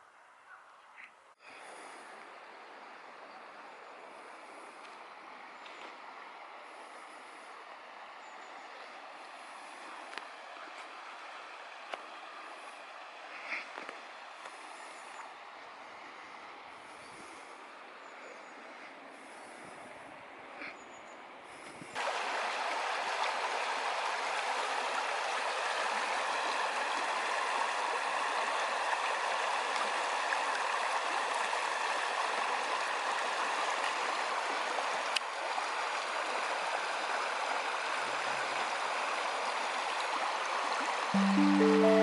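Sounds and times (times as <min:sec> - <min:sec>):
river rushing: 0:22.0 - 0:33.6, 0:34.2 - 0:42.0.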